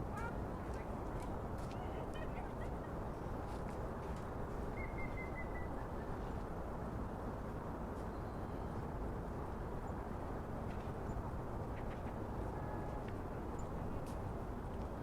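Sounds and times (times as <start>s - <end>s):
low hum of city surroundings: 0.0s - 15.0s.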